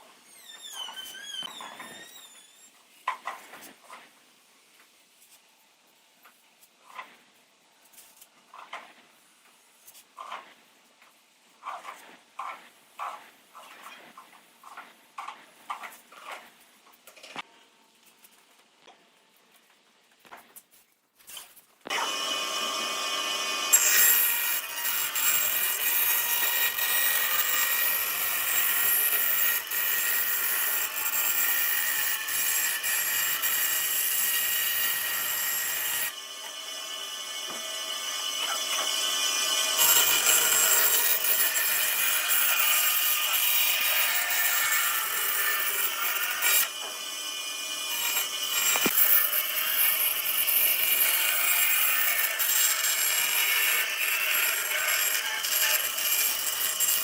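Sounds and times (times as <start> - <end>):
power tool whining: 21.9 - 27.8, 45.1 - 51.1
tool rasping wood: 47.9 - 57.0.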